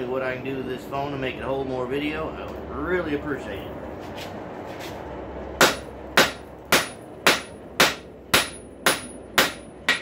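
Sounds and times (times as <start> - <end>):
hammer striking metal on anvil: 5.6 - 10.0.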